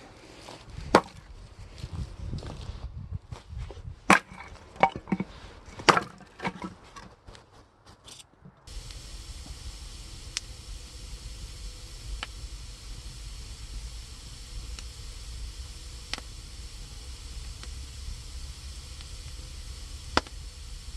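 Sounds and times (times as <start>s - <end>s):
axe splitting firewood: 0.9s - 1.2s, 4.1s - 7.1s, 10.4s - 20.7s
steady hiss: 4.1s - 6.7s, 8.7s - 20.9s
wood pieces clattering: 4.1s - 7.1s.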